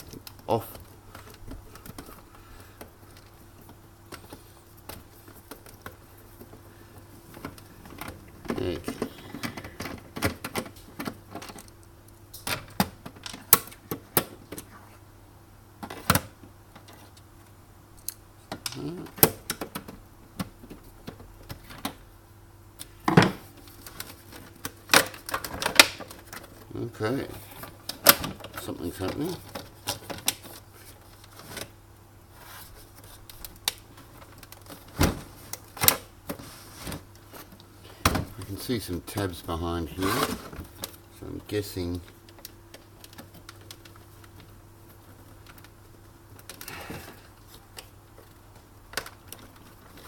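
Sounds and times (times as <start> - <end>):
faint steady hum: 0.0 - 50.0
tools and plastic parts clicking: 7.3 - 14.7, 22.8 - 26.7, 40.0 - 50.0.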